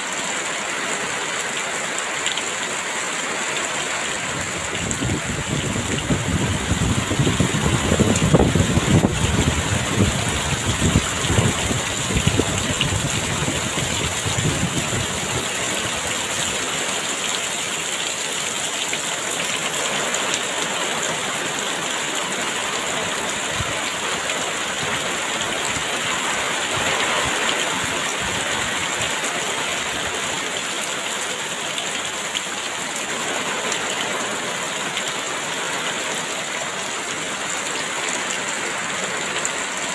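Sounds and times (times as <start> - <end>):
heavy rain pouring: 0.0 - 39.9
strong wind gusts: 4.3 - 16.1.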